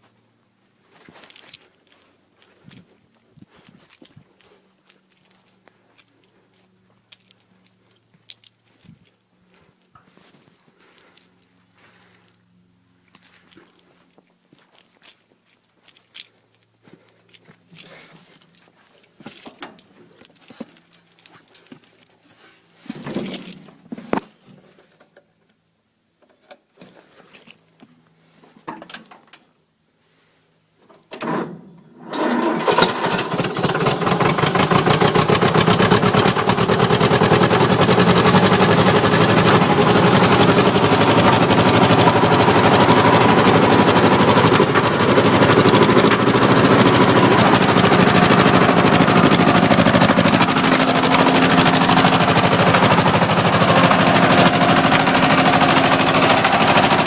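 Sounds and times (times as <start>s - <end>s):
diesel engine cranking and running: 31.0s - 57.0s.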